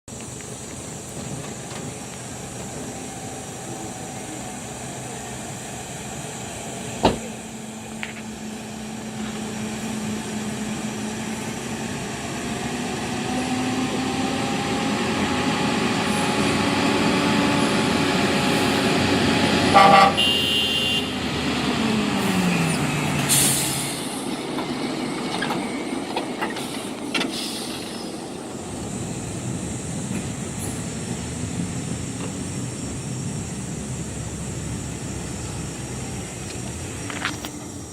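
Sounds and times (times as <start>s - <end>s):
truck diesel engine under load: 0.0s - 37.9s
truck horn toot: 19.7s - 21.2s.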